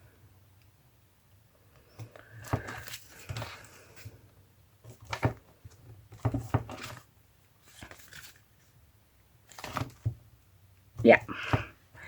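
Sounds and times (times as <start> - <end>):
paper and card rustling: 2.0 - 4.2, 6.1 - 8.7, 9.5 - 10.1.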